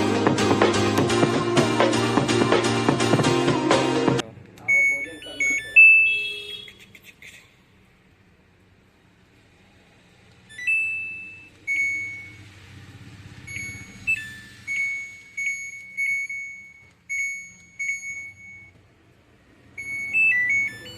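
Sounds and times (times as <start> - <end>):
washing machine electronic beeps: 4.6 - 6.8, 10.5 - 12.5, 13.4 - 18.8, 19.7 - 20.9.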